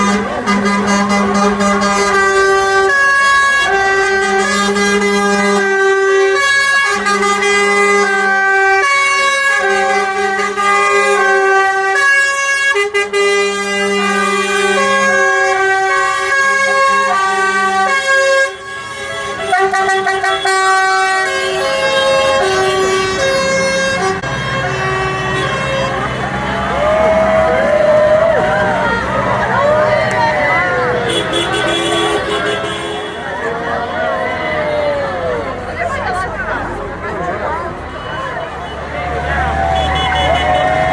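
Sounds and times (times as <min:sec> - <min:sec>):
vehicle air horns playing tune: 0:00.0 - 0:26.9, 0:31.0 - 0:33.4, 0:39.8 - 0:40.9.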